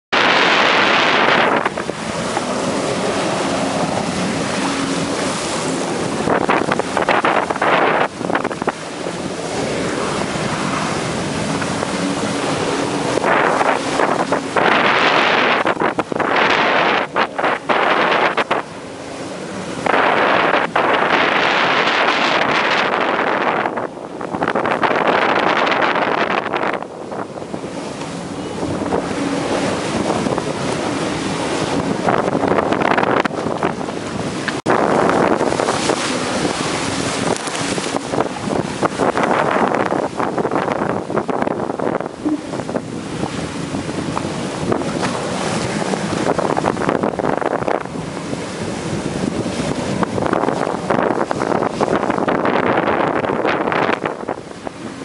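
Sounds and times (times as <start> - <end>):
jet ski engine: 0.1 - 55.0
water rushing: 0.1 - 55.0
wind buffeting microphone: 0.1 - 55.0.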